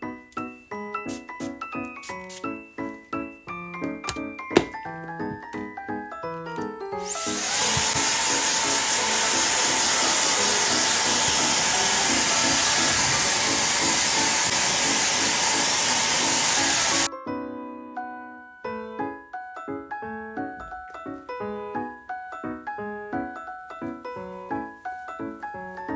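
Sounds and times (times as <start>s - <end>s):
hair dryer blowing: 7.0s - 17.1s.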